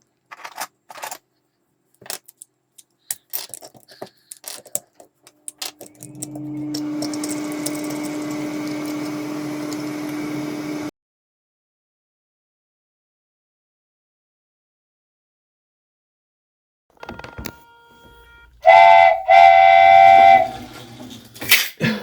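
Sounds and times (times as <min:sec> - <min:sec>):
small electric motor humming: 0:05.9 - 0:10.9.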